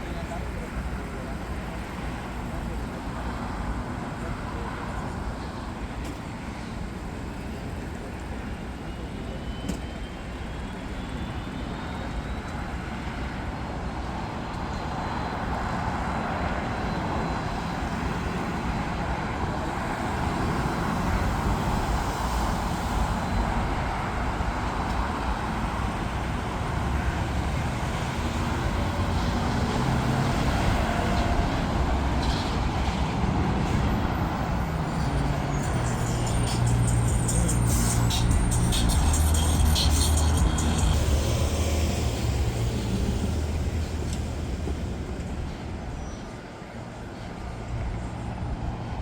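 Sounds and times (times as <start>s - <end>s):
jet engines roaring: 19.7s - 46.9s.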